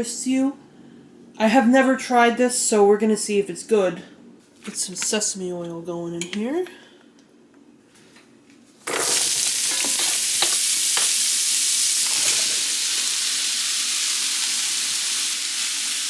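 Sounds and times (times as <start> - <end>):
food sizzling in a pan: 8.9 - 16.0.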